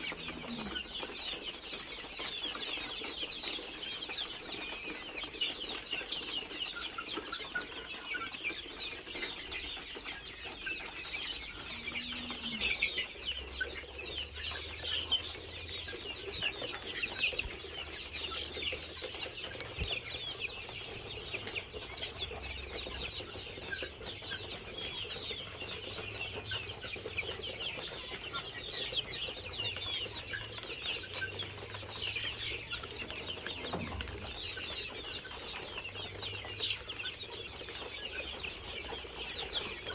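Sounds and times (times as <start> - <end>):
chickens calling: 0.0 - 39.9.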